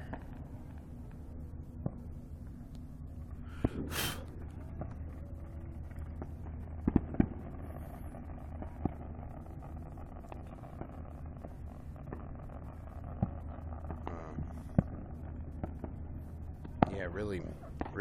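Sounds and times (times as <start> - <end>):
firework cracks and pops: 0.0 - 18.0
steady low rumble: 0.0 - 18.0
firework hiss: 3.2 - 4.6, 6.1 - 15.9.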